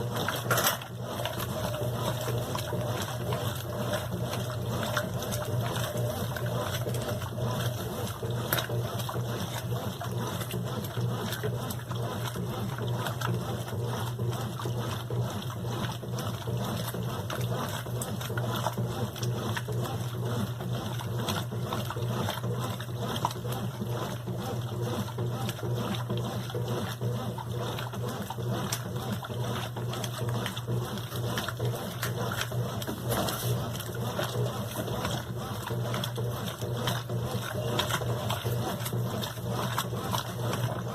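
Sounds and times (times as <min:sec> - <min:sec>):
washing machine hum: 0:00.0 - 0:40.9
water trickling and splashing: 0:27.5 - 0:40.9.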